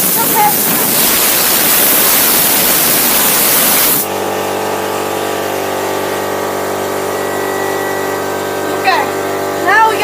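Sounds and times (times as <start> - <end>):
compressed air hissing from nozzle: 0.0 - 4.1
air compressor motor humming: 0.0 - 10.0.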